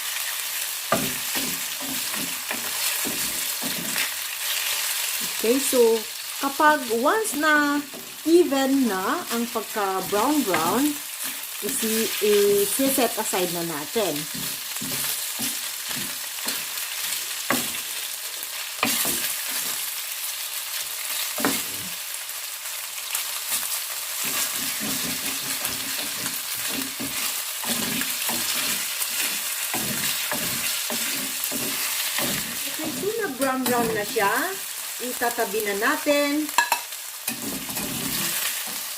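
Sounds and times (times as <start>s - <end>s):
chicken sizzling in hot oil: 0.0s - 38.9s
utensil knocking and scraping pan: 0.9s - 4.1s, 14.2s - 16.7s, 24.2s - 34.2s, 36.6s - 38.8s.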